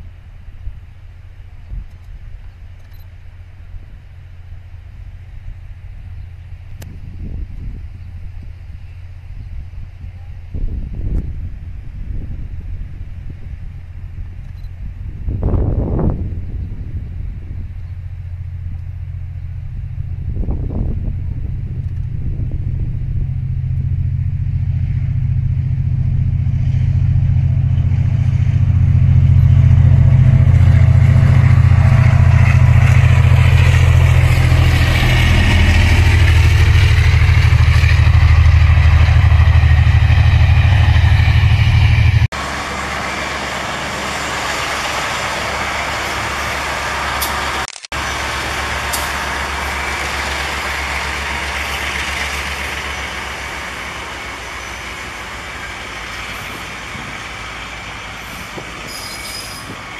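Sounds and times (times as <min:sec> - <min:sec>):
diesel engine drone: 0:00.0 - 0:59.9
train wheels rolling on rails: 0:26.1 - 0:59.9.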